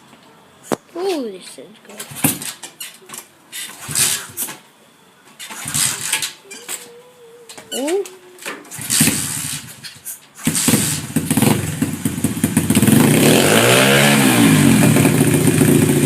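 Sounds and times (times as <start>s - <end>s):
motorbike engine running and revving: 8.7s - 9.8s, 10.4s - 16.0s
engine clatter: 10.4s - 16.0s.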